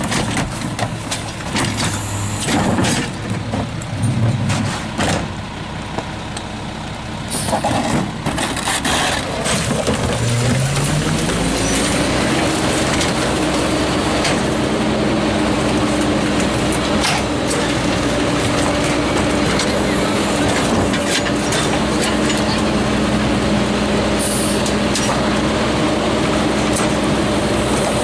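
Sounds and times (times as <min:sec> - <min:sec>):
garbage truck diesel engine revving: 0:07.0 - 0:28.0.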